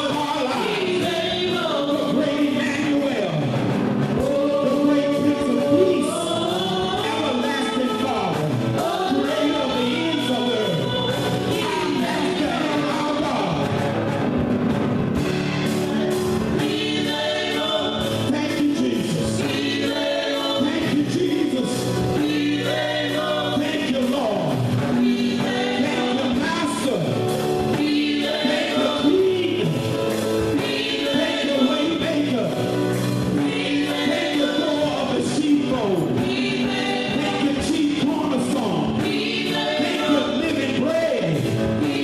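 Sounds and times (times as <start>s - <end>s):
band accompaniment: 0.0s - 42.0s
choir singing gospel: 0.0s - 42.0s.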